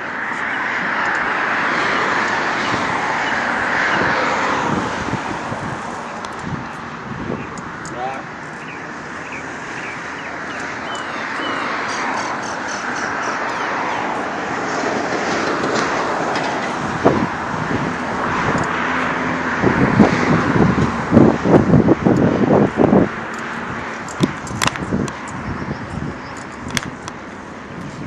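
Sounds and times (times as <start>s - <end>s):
bicycle road noise: 0.0s - 28.0s
wind rushing on microphone: 0.0s - 28.0s.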